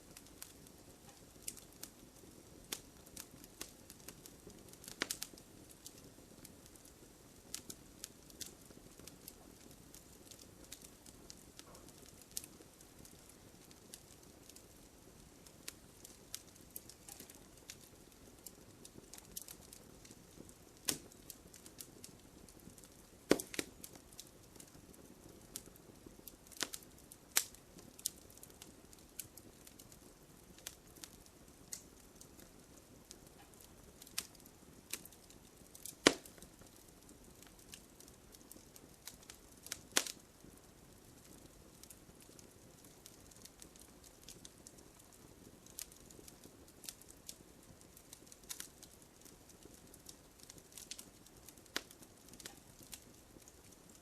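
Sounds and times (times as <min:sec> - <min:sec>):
fire hissing: 0:00.0 - 0:32.4, 0:33.2 - 0:40.6
campfire crackling: 0:00.0 - 0:54.0.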